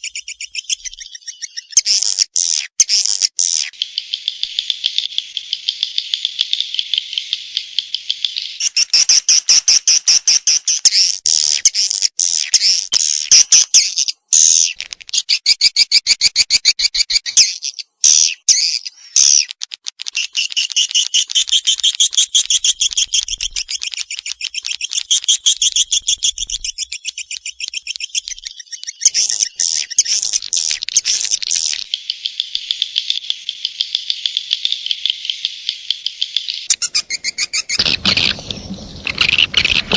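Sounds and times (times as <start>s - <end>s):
swiftlet chirping twitters: 37.8s - 39.9s.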